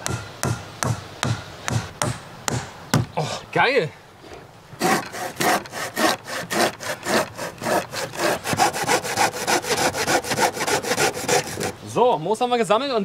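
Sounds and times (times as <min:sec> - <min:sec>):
hand saw cutting wood: 0:04.8 - 0:11.8.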